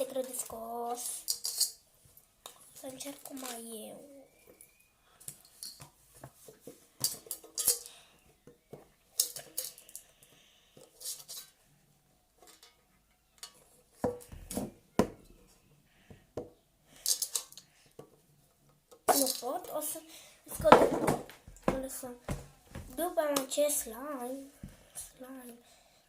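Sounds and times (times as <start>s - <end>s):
container clicks and scrapes: 0.0s - 1.8s, 2.5s - 3.7s, 10.8s - 11.6s, 17.0s - 17.7s.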